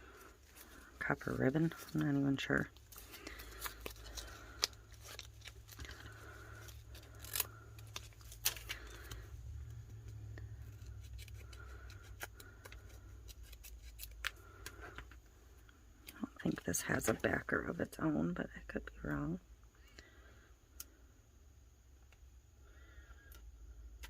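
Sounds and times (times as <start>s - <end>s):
paper and tape handled: 0.1s - 15.1s.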